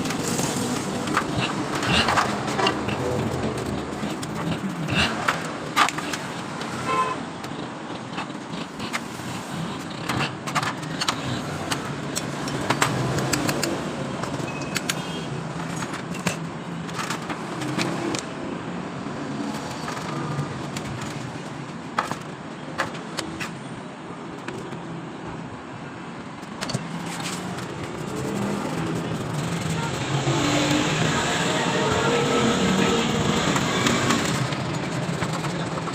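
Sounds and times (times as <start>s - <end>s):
sharp metallic clicks and knocks: 0.0s - 18.3s, 19.4s - 23.7s, 33.0s - 35.9s
road traffic noise: 0.0s - 35.9s.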